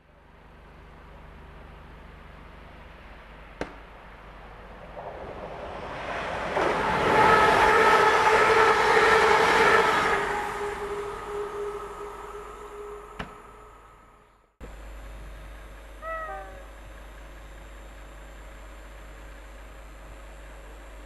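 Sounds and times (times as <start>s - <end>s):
train passing with rushing wheels: 3.9s - 14.4s
train motor whine: 6.5s - 17.2s.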